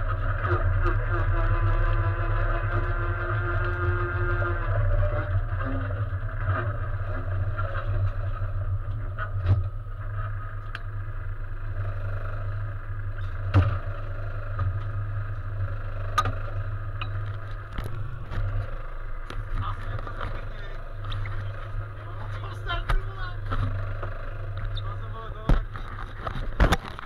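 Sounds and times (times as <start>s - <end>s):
race car engine idling: 0.0s - 27.0s
sharp knocks and clunks: 13.5s - 13.9s, 25.4s - 27.0s.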